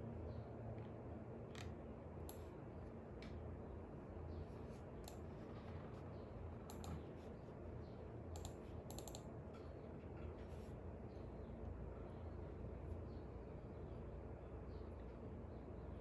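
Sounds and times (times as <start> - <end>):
light sharp clicks: 6.7 - 7.0, 8.3 - 9.7.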